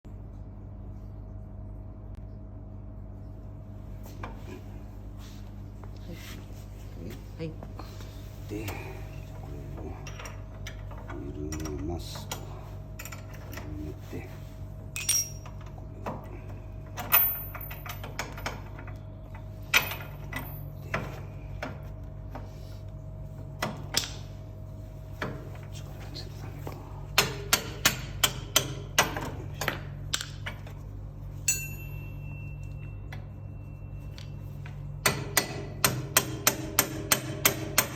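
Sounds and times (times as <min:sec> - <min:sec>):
low machine hum: 0:00.0 - 0:37.9
metallic clicks and clinks: 0:15.0 - 0:15.7.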